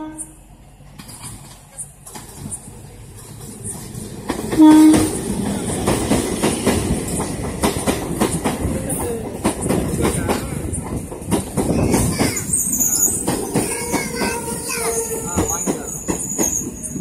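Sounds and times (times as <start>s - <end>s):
train horn blast: 0.0s - 0.4s, 4.5s - 5.2s
train wheels clattering: 0.9s - 17.0s.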